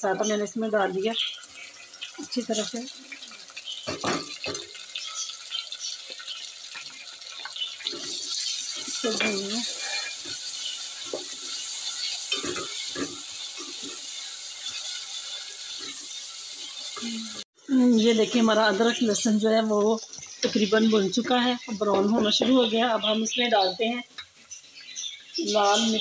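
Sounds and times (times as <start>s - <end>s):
food sizzling in oil: 0.0s - 26.0s
spoon scraping and knocking a pot: 7.8s - 16.7s.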